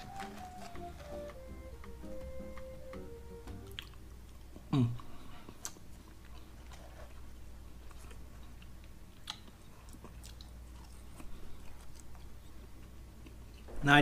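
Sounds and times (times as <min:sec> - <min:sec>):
background music: 0:00.0 - 0:04.3
person chewing: 0:03.6 - 0:13.7.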